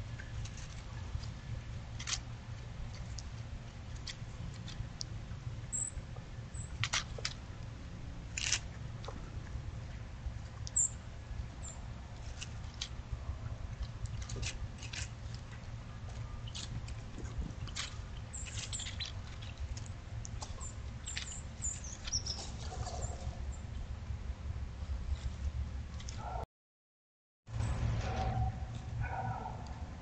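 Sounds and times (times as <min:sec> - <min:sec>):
steady low hum: 0:00.0 - 0:26.4
sharp bird ticks: 0:10.7 - 0:11.0, 0:18.3 - 0:22.5
high bird chirps: 0:20.6 - 0:23.2.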